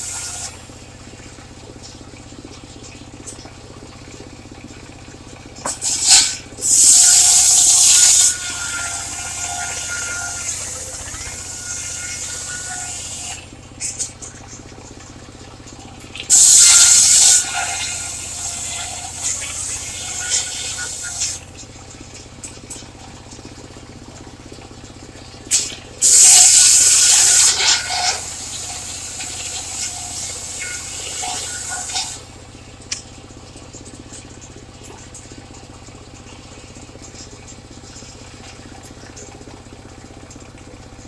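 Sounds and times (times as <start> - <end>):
circular saw blade cutting timber: 0.0 - 0.6, 5.6 - 14.1, 16.3 - 21.6, 25.5 - 32.3
low engine hum: 0.0 - 41.0.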